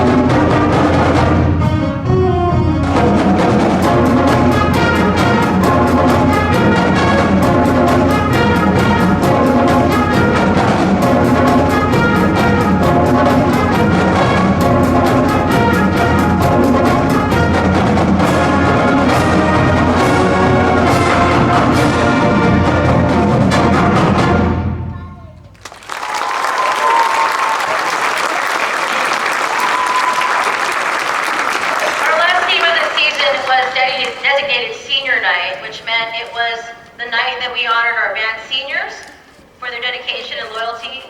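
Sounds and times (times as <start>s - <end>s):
brass horns: 0.0s - 25.0s, 31.3s - 35.4s
driving drum beat: 0.0s - 25.4s.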